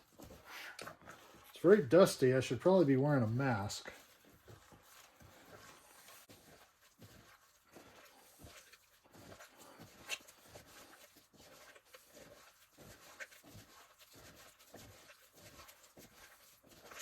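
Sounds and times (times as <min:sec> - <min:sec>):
papier-mache being mixed: 0:00.0 - 0:17.0.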